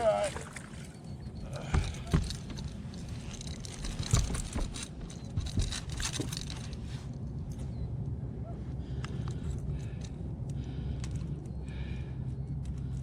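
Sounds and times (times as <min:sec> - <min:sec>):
steady low rumble: 0:00.0 - 0:13.0
knocks and scrapes in a boat: 0:00.4 - 0:07.7.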